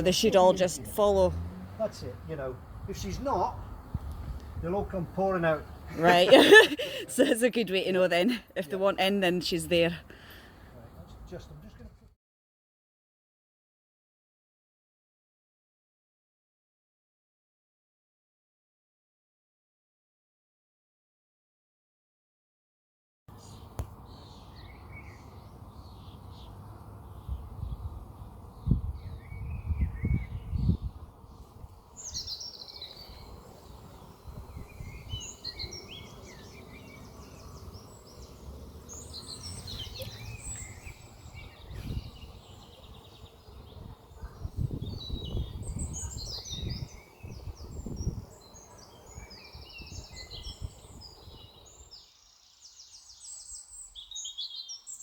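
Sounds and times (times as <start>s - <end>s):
small birds chirping: 0.0s - 12.0s, 23.3s - 55.0s
wind buffeting microphone: 2.6s - 5.2s, 27.1s - 37.3s, 38.7s - 51.7s.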